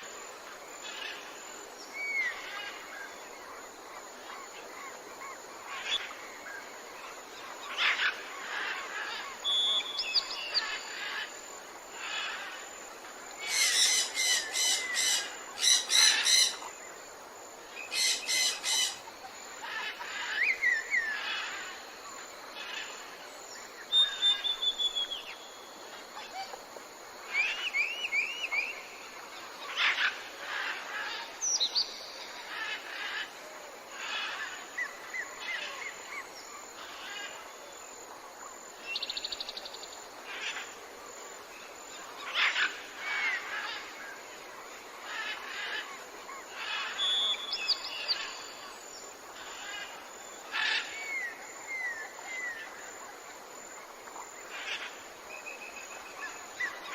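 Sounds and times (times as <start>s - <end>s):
steady background hiss: 0.0s - 56.9s
songbirds singing: 4.2s - 11.4s, 17.8s - 26.5s, 45.0s - 53.0s.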